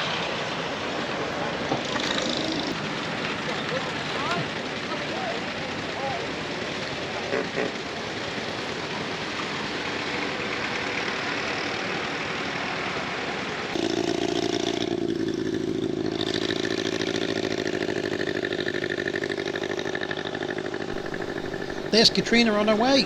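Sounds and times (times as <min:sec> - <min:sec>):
engine running with fast beat: 0:21.0 - 0:23.0
engines rushing noise: 0:21.0 - 0:23.0.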